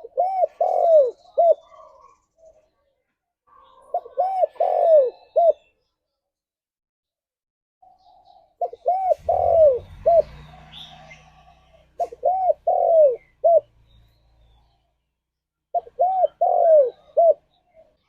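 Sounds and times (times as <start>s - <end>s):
dove cooing: 0.0s - 2.7s, 3.5s - 5.7s, 7.8s - 14.8s, 15.7s - 18.0s.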